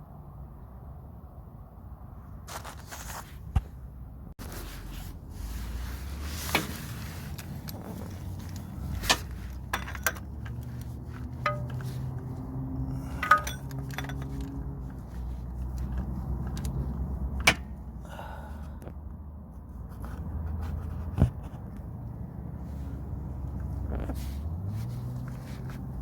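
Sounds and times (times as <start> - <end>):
metal clinks and taps: 8.4 - 12.4, 13.0 - 15.0.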